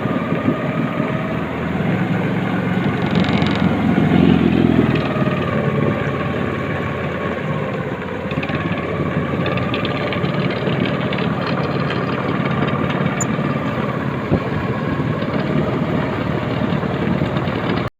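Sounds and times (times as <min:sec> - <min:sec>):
small engine running: 0:00.0 - 0:17.9.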